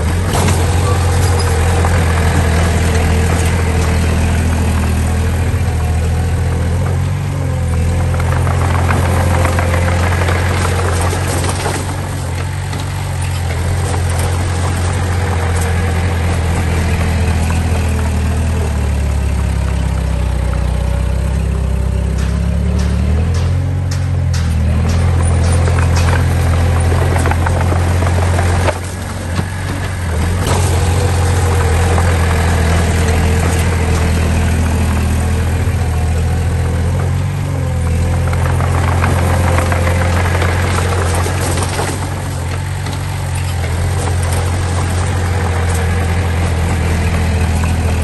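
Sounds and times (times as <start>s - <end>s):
diesel engine humming: 0.0s - 48.0s.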